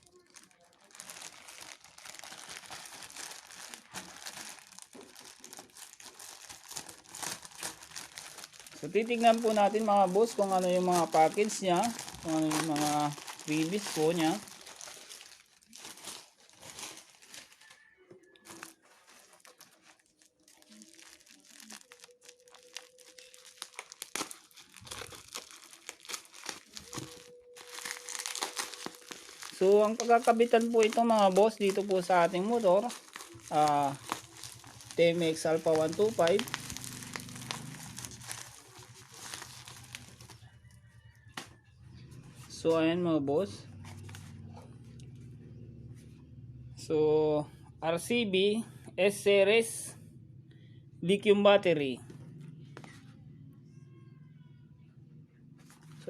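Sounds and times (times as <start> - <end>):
packaging crinkling and rustling: 0.0 - 40.6, 43.8 - 44.6.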